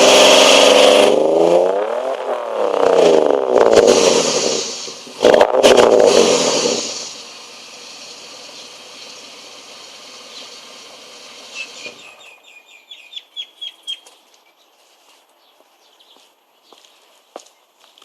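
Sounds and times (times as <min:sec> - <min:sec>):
car engine revving and idling: 0:00.0 - 0:12.2.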